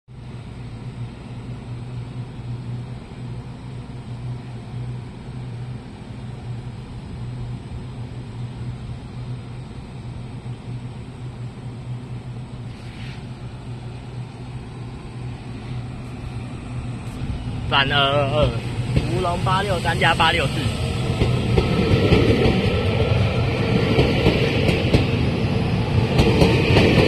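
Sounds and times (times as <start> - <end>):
electric train humming: 0.1 - 27.0
brief hiss: 12.6 - 13.4.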